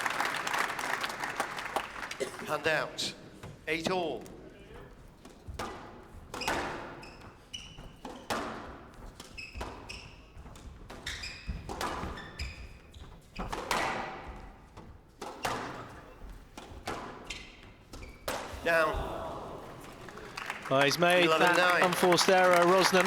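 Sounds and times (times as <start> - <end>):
shoes squeaking on court floor: 3.3 - 19.1
squash ball hits echoing: 5.5 - 7.1, 7.7 - 12.8, 13.4 - 19.6.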